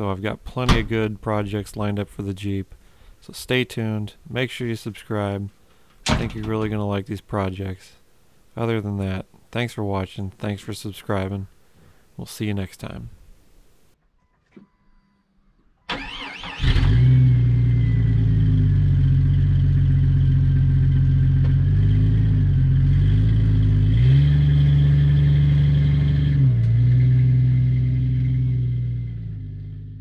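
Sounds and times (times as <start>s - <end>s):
engine starter cranking: 15.9s - 17.6s
engine running and revving: 16.6s - 30.0s.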